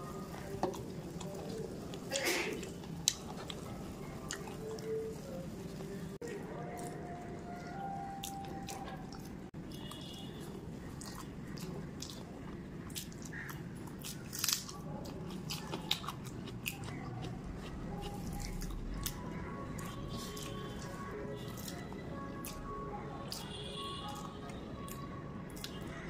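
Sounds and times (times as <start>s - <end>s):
wet chewing and lip-smacking: 6.6s - 26.0s.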